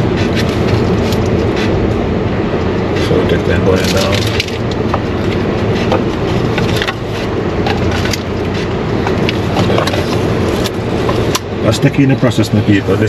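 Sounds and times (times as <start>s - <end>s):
car wash machinery rumbling: 0.0s - 13.0s.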